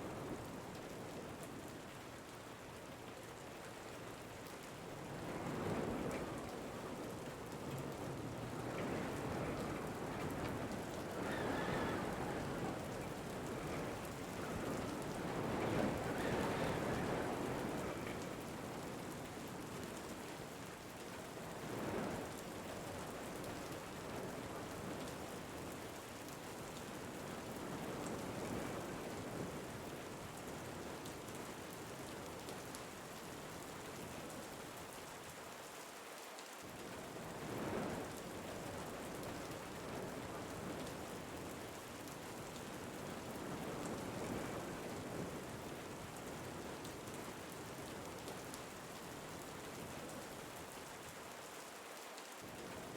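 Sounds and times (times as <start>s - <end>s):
steady rain falling: 0.0s - 52.9s
wind gusts: 5.0s - 20.3s, 42.8s - 50.8s.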